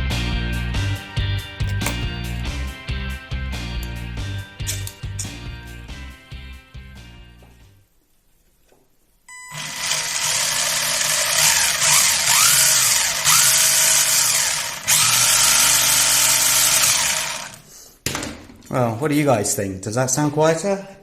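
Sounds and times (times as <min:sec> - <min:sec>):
toy car motor whirring: 0:09.6 - 0:17.6.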